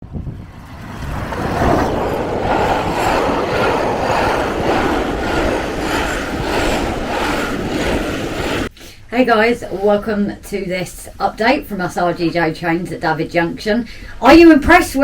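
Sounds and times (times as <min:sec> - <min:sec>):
model train running on track: 0:00.6 - 0:08.7.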